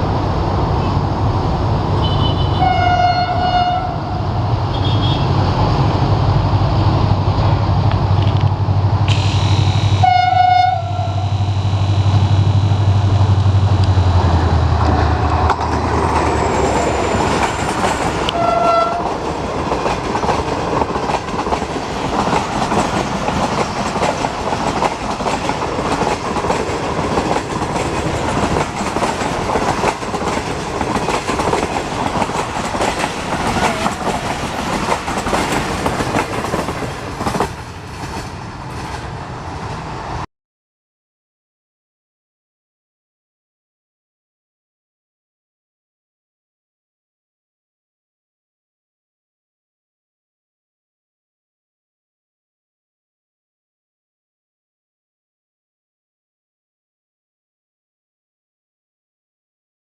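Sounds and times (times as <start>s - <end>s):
diesel locomotive engine drone: 0.0s - 40.3s
train horn blast: 2.0s - 5.3s, 9.1s - 11.8s, 18.3s - 19.1s
train wheels clattering over rails: 13.3s - 39.8s.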